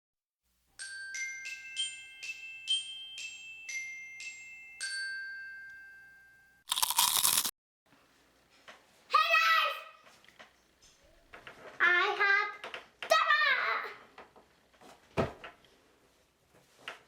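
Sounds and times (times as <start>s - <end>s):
glockenspiel-like bell melody: 0.8s - 6.6s.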